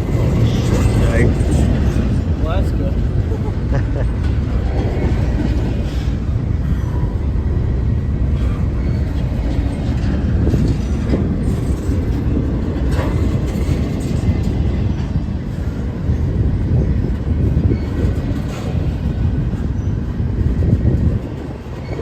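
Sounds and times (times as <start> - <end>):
train rumbling over rails: 0.0 - 22.0
faint rail clacks: 8.2 - 22.0.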